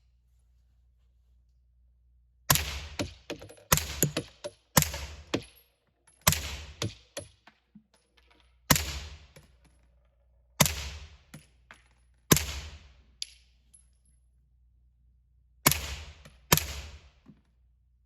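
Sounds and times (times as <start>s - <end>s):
suppressed gunshots: 2.5s - 5.1s.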